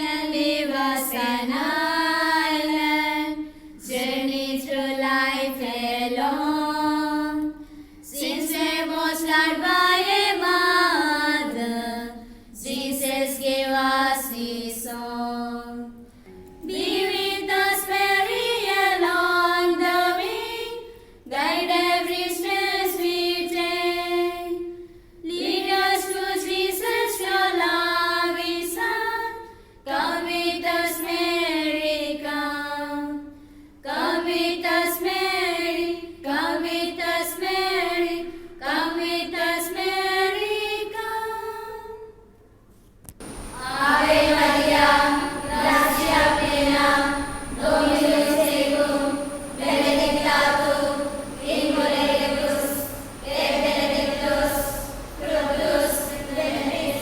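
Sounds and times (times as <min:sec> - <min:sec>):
woman singing a hymn: 0:00.0 - 0:16.0, 0:16.6 - 0:24.6, 0:43.4 - 0:57.0.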